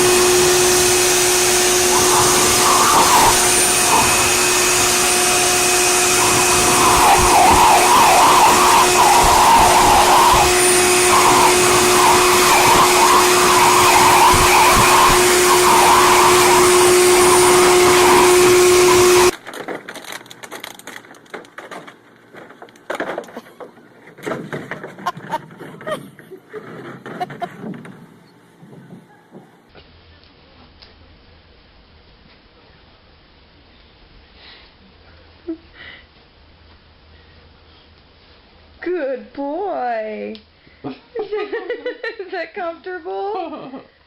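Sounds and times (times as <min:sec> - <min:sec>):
blow dryer whining: 0:00.0 - 0:23.9.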